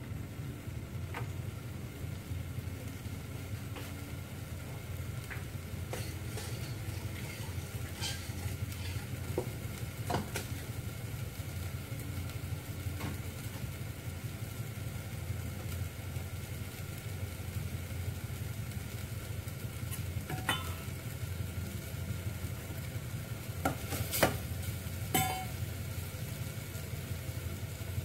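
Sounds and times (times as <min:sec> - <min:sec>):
food sizzling in pot: 0:00.0 - 0:28.0
utensil clinking on pot: 0:19.9 - 0:21.0, 0:25.1 - 0:25.6.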